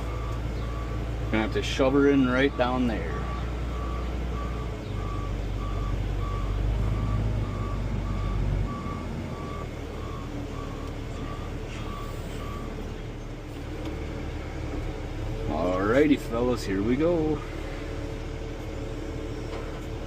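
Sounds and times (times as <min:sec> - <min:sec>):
reverse alarm beeping: 0:00.0 - 0:12.9
tractor diesel engine drone: 0:00.0 - 0:20.0.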